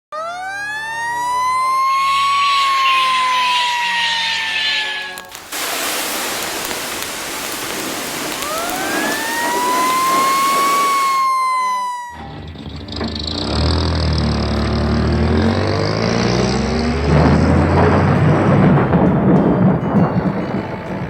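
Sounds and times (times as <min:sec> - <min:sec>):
cartoon siren wailing: 0:00.1 - 0:05.3, 0:08.4 - 0:12.4
loud rushing noise: 0:05.4 - 0:11.2.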